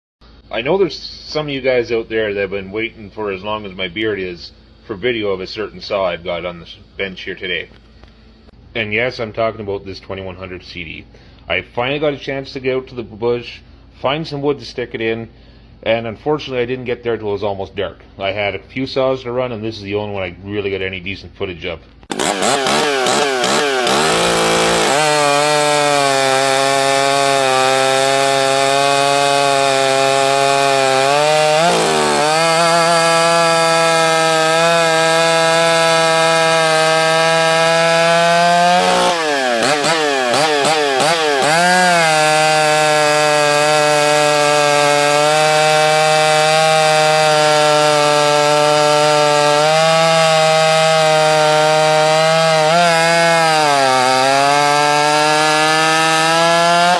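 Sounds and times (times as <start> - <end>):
chainsaw cutting wood: 22.0 - 56.9.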